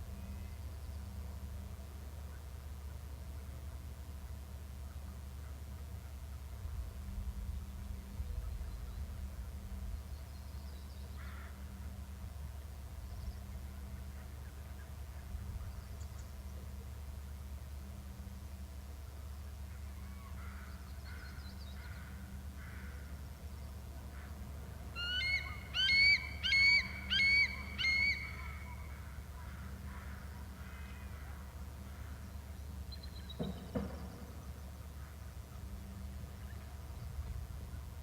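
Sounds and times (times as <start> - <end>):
bird calling: 24.9 - 32.2.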